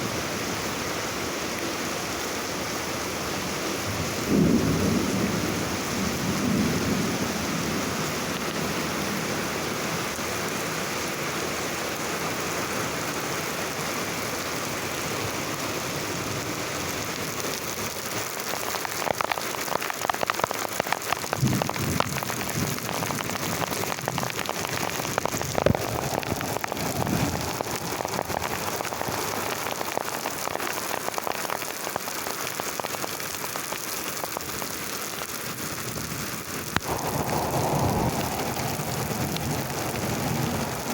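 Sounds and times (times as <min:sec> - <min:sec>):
heavy rain falling: 0:00.0 - 0:40.9
thunder rumble: 0:21.3 - 0:29.8, 0:36.7 - 0:40.9.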